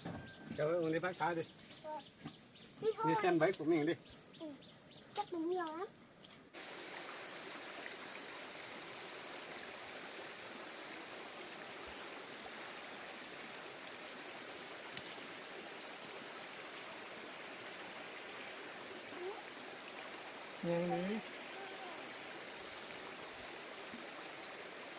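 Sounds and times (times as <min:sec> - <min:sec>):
stream rushing over rocks: 0:06.6 - 0:24.9.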